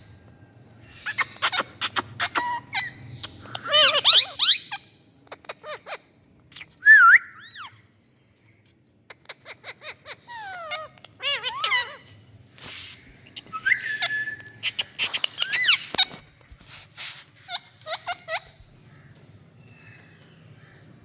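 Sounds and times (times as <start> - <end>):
parrots chirping and squawking: 0.8 - 6.7, 9.1 - 19.3.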